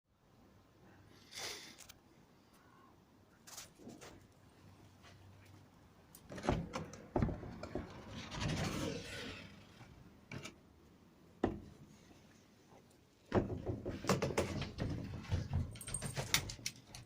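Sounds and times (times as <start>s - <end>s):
rough scraping rub: 7.8s - 10.1s.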